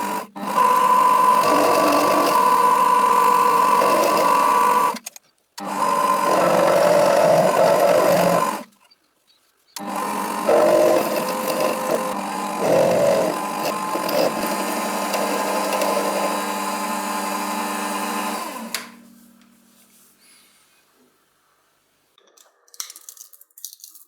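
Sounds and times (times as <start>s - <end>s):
power tool whining and grinding: 0.0s - 8.8s, 9.8s - 19.0s
power tool switch click: 18.6s - 19.0s.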